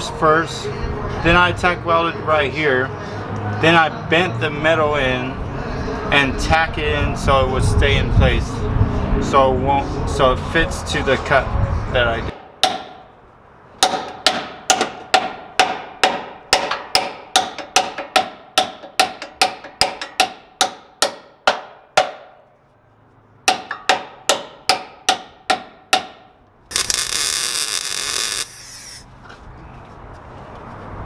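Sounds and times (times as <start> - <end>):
loud hissing burst: 26.7 - 29.0.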